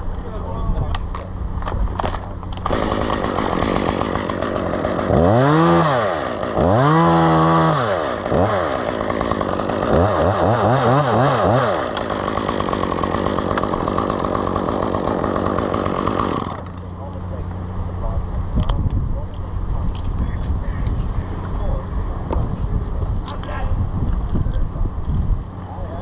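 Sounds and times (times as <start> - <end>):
chainsaw idling and revving: 2.6 - 17.2.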